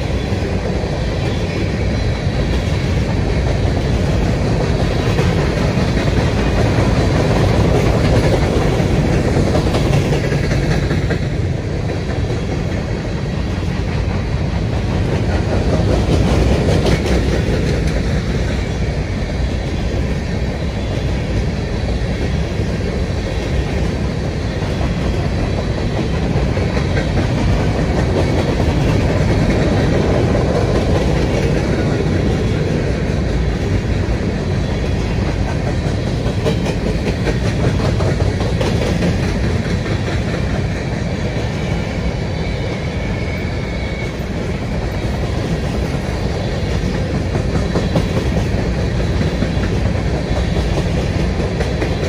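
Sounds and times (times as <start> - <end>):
wheels clicking over rail joints: 0.0 - 42.0, 44.0 - 52.0
steel wheels rumbling on rail: 0.0 - 52.0.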